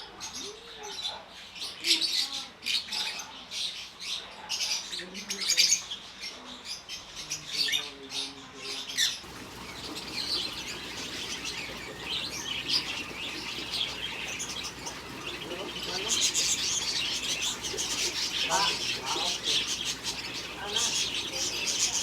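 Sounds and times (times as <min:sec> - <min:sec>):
birds chattering: 0:00.0 - 0:22.0.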